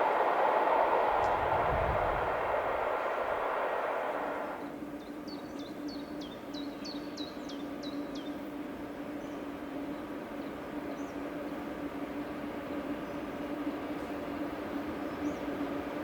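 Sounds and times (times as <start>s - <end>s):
low hum: 0.0s - 4.7s.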